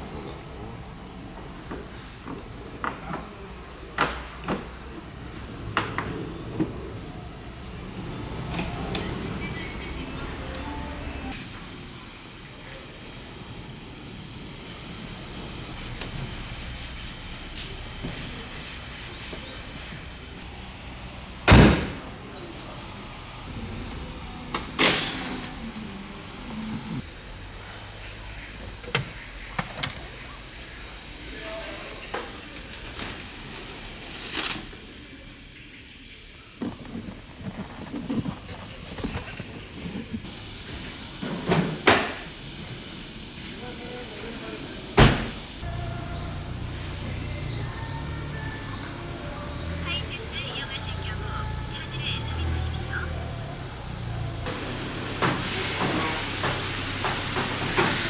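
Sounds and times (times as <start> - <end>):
small electric motor running: 5.0 - 28.1, 40.2 - 58.0.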